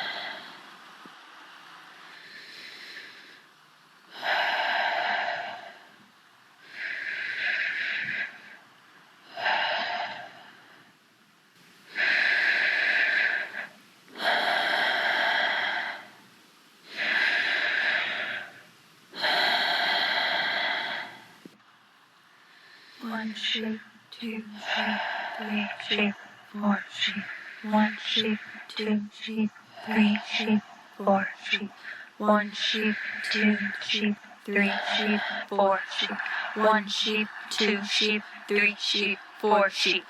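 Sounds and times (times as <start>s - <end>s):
person breathing heavily: 0.0s - 0.9s, 2.0s - 6.0s, 6.6s - 8.6s, 9.2s - 11.0s, 11.8s - 16.2s, 16.8s - 21.4s, 22.3s - 40.0s.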